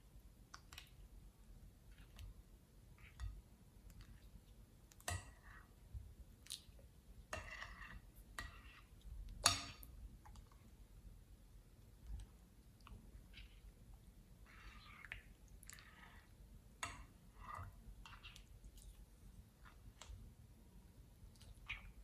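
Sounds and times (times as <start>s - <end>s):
wet squishes: 6.4s - 6.8s, 12.0s - 16.4s, 21.2s - 22.0s.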